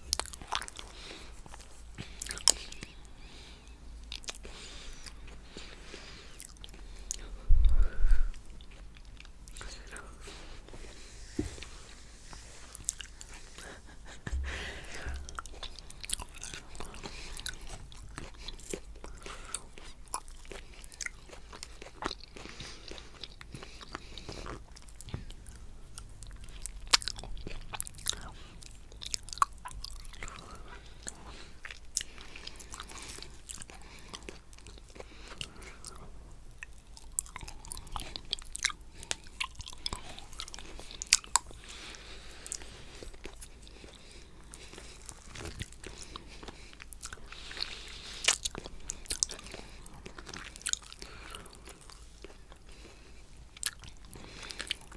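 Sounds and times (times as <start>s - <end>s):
wet chewing with clicks and smacks: 0.0s - 10.3s, 12.7s - 54.9s.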